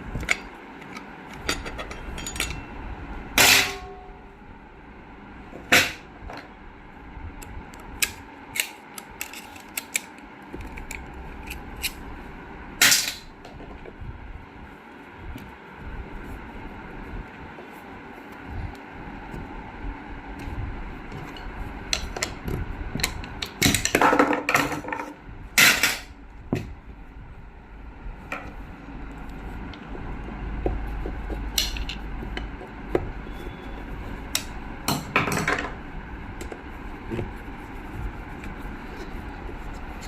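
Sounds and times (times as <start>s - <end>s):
steady low hum: 0.0s - 40.0s
metal parts clicking and knocking: 0.2s - 2.6s.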